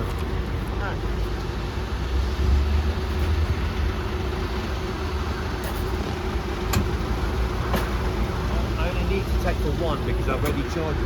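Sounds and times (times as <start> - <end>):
van engine idling: 0.0 - 11.0.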